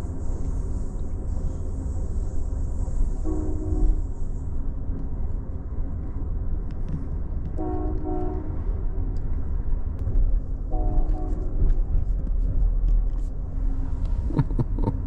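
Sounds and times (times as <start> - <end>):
train rumble: 0.0 - 15.0
train horn blasts: 3.2 - 4.1, 7.6 - 8.7, 10.7 - 11.7.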